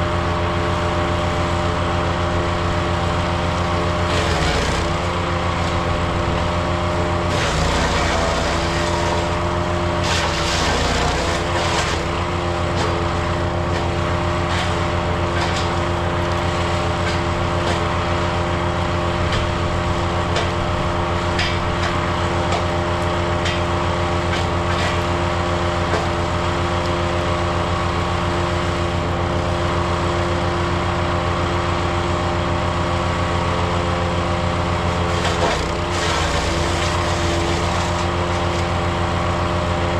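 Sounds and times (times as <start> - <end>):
wood chipper engine running: 0.0 - 39.9
branches cracking in chipper: 3.1 - 25.2, 34.9 - 39.4.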